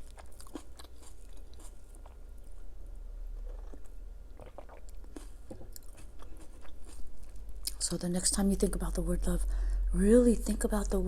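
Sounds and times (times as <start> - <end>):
chewing food: 0.0 - 7.9.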